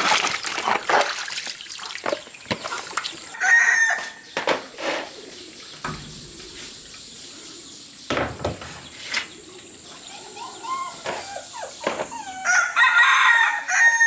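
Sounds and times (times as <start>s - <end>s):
sharp knocks: 5.8s - 8.8s
chicken calling: 9.3s - 14.0s.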